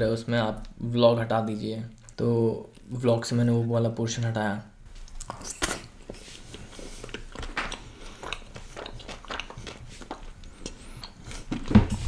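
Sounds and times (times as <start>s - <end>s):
person chewing food: 4.9s - 12.0s.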